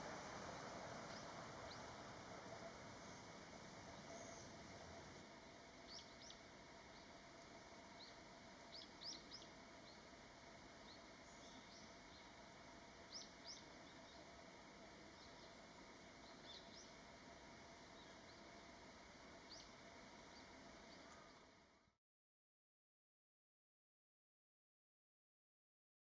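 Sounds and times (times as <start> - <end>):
small birds chirping: 0.0 - 5.2, 5.8 - 7.2, 8.0 - 10.1, 10.8 - 12.4, 13.0 - 14.4, 15.0 - 17.1, 17.8 - 18.7, 19.4 - 21.4
low outdoor background hiss: 0.0 - 22.0.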